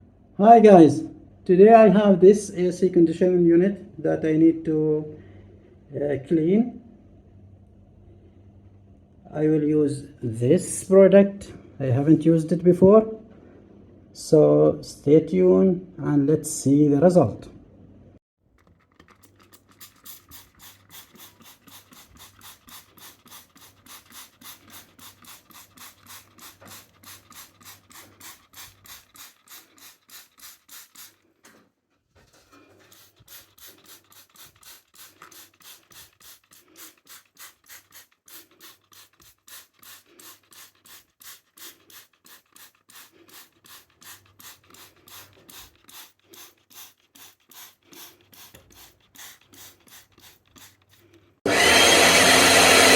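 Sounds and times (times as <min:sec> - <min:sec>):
rapid scrubbing strokes: 0:19.0 - 0:31.3, 0:32.3 - 0:52.9.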